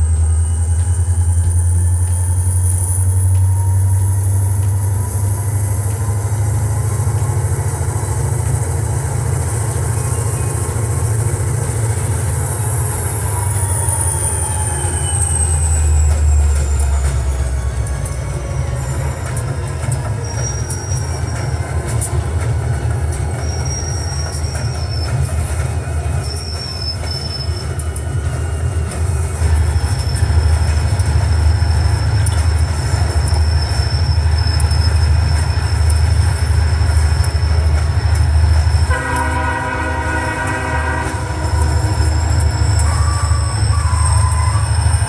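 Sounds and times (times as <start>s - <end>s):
diesel train engine rumble: 0.0s - 45.0s
thin high squeals: 9.4s - 17.1s, 18.6s - 22.4s, 23.1s - 38.9s, 41.4s - 45.0s
train horn blast: 38.8s - 44.6s.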